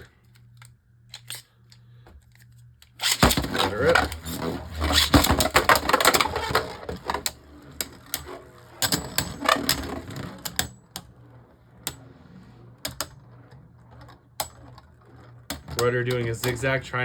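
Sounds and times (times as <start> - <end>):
spinning tops clattering and clicking: 2.9 - 17.0.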